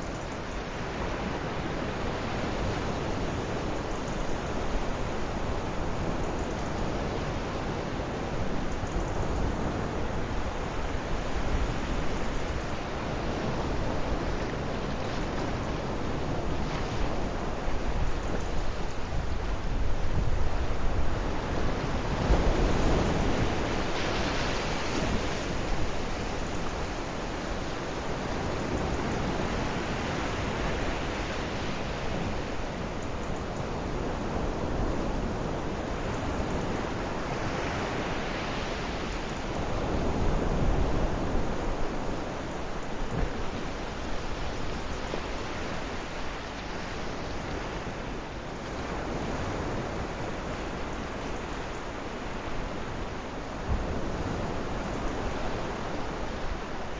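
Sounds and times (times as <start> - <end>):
sea waves washing onto shore: 0.0 - 56.9.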